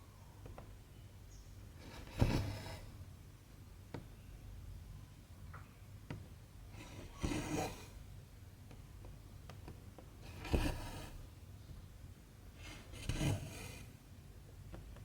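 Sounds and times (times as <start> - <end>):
thread rasping through fabric: 1.8 - 2.9, 6.8 - 7.9, 10.3 - 11.2, 12.6 - 13.9.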